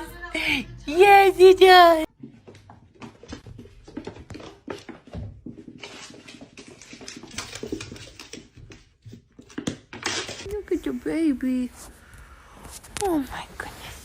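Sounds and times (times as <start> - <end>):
pet tapping and rustling: 2.2 - 10.5.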